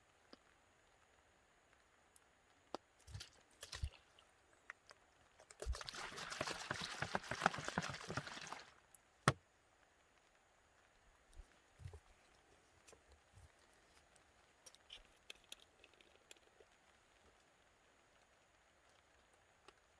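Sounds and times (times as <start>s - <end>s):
water poured into a container: 3.1s - 4.3s, 5.4s - 8.8s.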